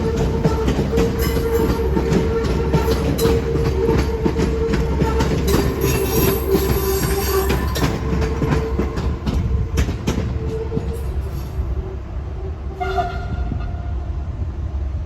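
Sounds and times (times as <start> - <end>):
train wheels clicking over rail joints: 0.0 - 11.6
wheels squealing against rails: 0.0 - 11.8
train rumble: 0.0 - 15.0.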